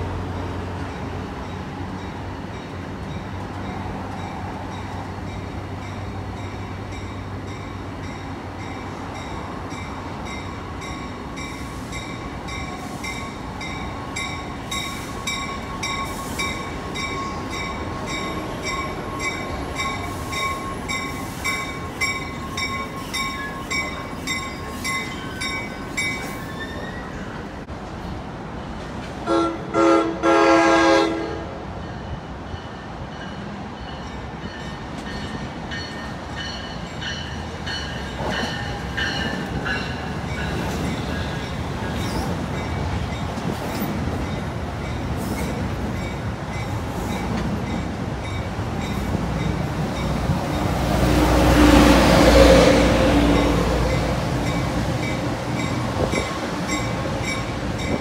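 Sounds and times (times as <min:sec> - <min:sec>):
rumble of passing train cars: 0:00.0 - 0:58.0
train bell ringing: 0:01.5 - 0:27.2, 0:31.8 - 0:50.9, 0:53.3 - 0:58.0
train horn blasts: 0:29.2 - 0:31.6.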